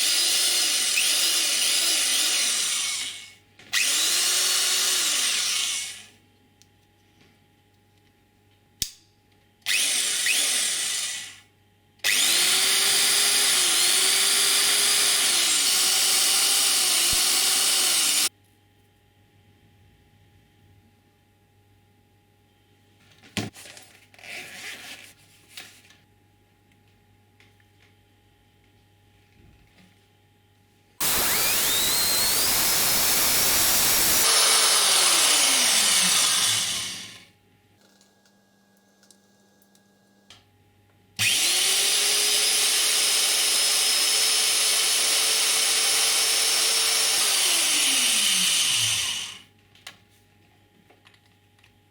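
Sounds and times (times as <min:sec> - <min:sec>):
electric drill motor whine: 0:00.0 - 0:06.1, 0:09.7 - 0:11.4, 0:12.0 - 0:18.3, 0:31.0 - 0:37.3, 0:41.2 - 0:49.5.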